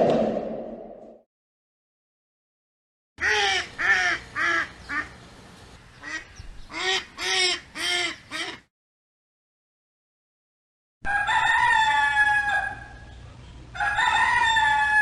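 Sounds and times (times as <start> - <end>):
duck quacking: 3.2 - 5.1, 6.0 - 8.7.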